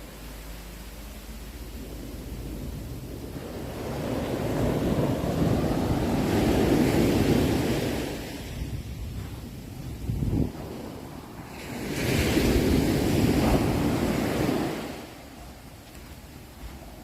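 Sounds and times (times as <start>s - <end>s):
sea waves breaking on shore: 0.0s - 17.0s.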